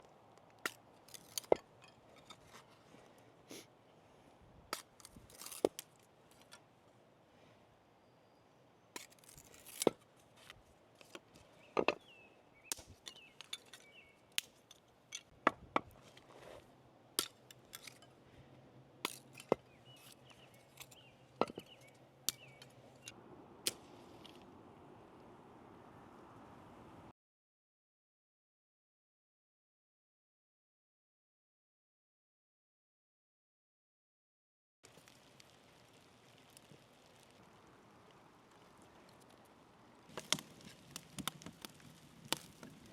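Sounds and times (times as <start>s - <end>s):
sharp knocks and cracks: 12.7s - 16.0s, 40.1s - 42.9s.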